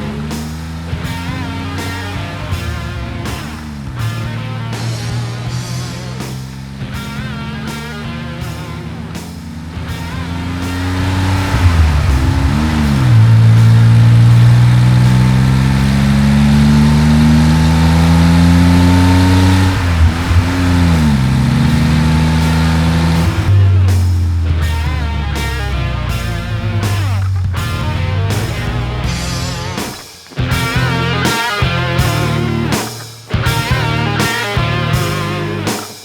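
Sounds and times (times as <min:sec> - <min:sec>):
car engine accelerating: 0:00.0 - 0:36.0
rock music: 0:00.0 - 0:36.0.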